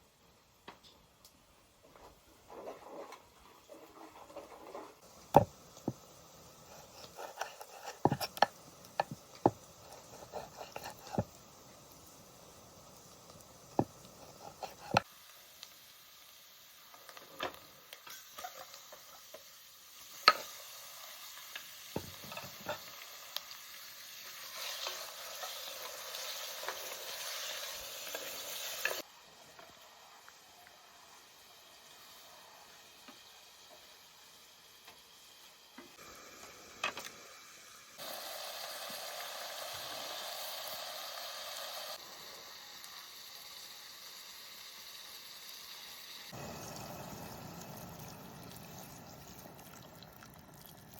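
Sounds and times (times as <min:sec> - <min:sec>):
food sizzling in a pan: 0:01.6 - 0:50.9
utensil stirring and knocking pan: 0:03.9 - 0:11.9, 0:13.3 - 0:15.1.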